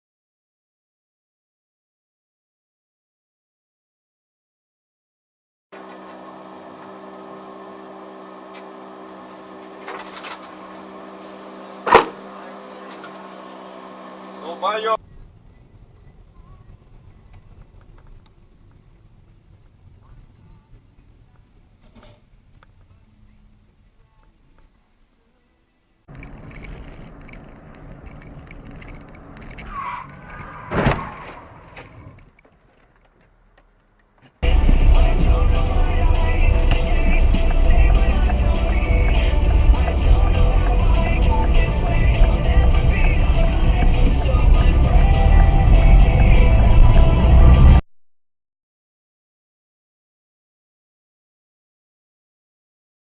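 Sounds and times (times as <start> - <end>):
car engine humming: 5.8 - 47.8
sharp knock: 11.8 - 12.2
tyre squeal: 29.1 - 32.2
loud collision impact: 30.6 - 31.7.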